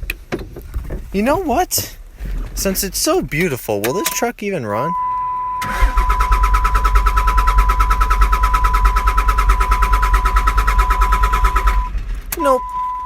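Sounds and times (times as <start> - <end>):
diesel engine cranking: 0.0 - 13.0.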